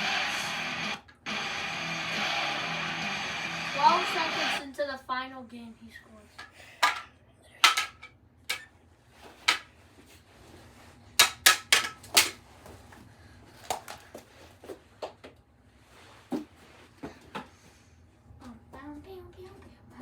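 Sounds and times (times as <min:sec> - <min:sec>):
hockey sticks clacking: 0:11.2 - 0:12.4.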